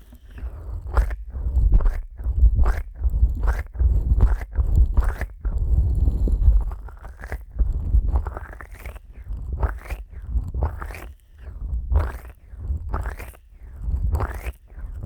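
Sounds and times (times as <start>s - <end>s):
deep rumble near microphone: 0.0s - 7.0s
fingers rubbing microphone: 0.0s - 15.0s.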